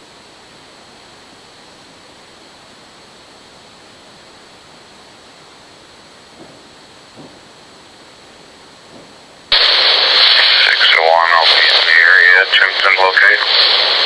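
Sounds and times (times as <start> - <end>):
police scanner static hiss: 0.0 - 14.0.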